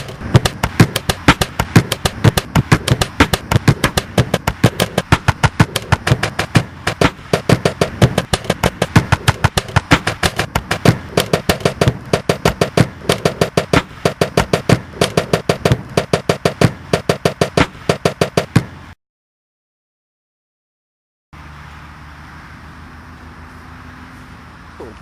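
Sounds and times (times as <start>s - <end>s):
pulsing mid-pitched hum: 0.0s - 18.8s
sharp rhythmic clicks and knocks: 0.0s - 18.8s
steady hum: 0.0s - 19.0s.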